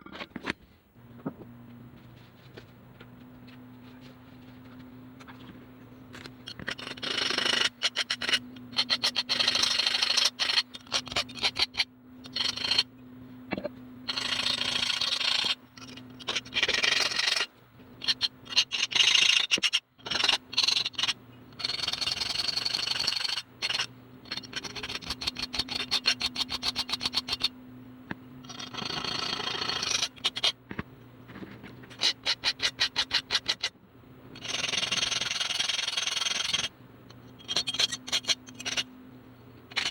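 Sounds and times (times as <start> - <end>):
faint low hum: 0.0 - 39.9.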